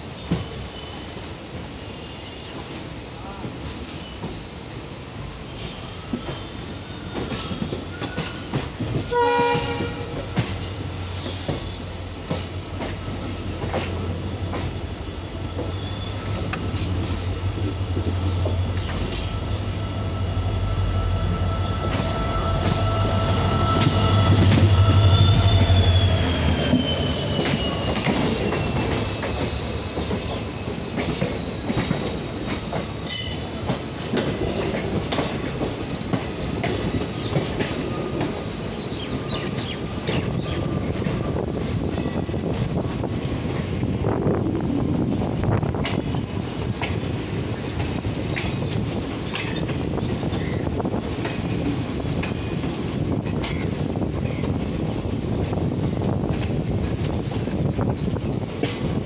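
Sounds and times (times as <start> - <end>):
train wheels clattering: 2.6 - 59.0
locomotive hum: 4.2 - 59.0
train horn blast: 9.1 - 10.5, 19.2 - 26.2.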